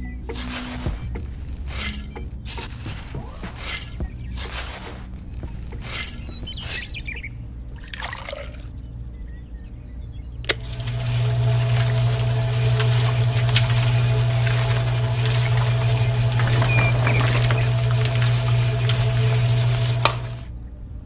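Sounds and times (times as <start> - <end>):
water trickling: 7.6 - 8.7, 10.5 - 20.5
small electric motor humming: 10.5 - 20.5
wet cement churning: 10.6 - 20.5.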